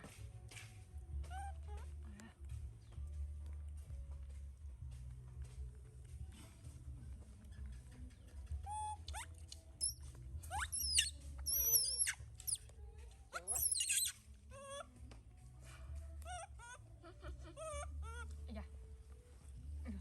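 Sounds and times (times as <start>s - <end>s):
young monkey squealing: 8.7s - 12.6s, 13.4s - 14.8s.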